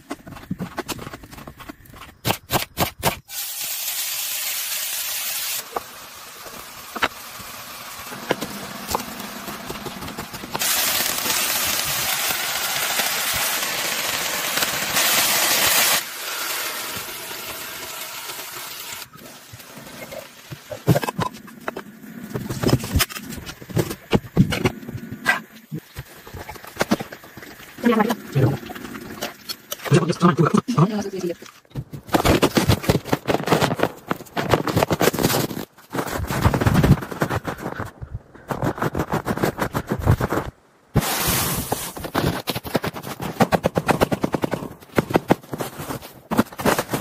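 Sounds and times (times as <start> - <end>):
hissing spray: 41.0 - 42.0.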